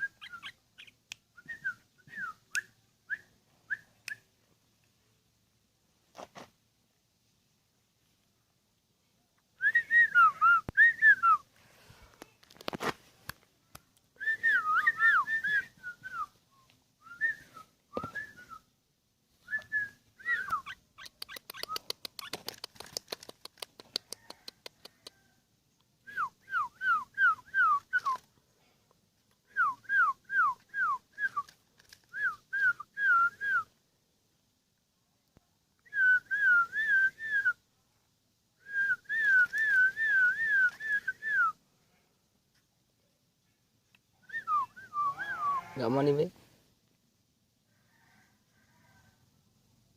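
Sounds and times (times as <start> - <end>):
bulbul singing whistled phrases: 0.0 - 4.3, 14.2 - 18.7, 19.4 - 22.3, 44.2 - 45.7
rapid run of clicks: 21.0 - 24.9.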